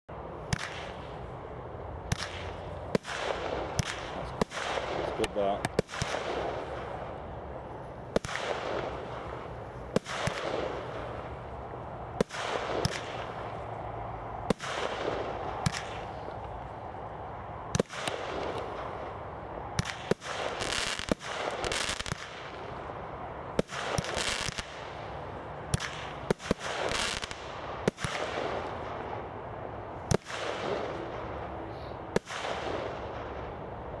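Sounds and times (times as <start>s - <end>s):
firework barrage bangs: 8.1s - 11.3s, 12.2s - 13.5s.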